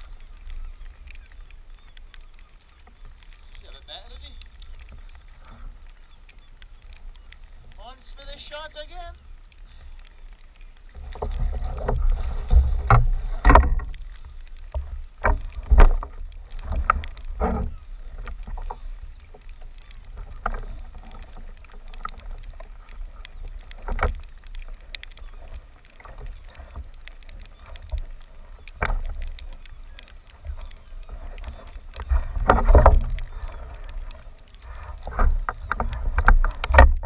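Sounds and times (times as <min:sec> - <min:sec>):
water slapping against hull: 0:10.9 - 0:37.0.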